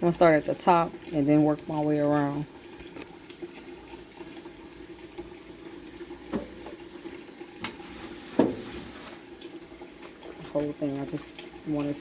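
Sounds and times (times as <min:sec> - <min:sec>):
wet cloth scrubbing: 0:05.8 - 0:12.0.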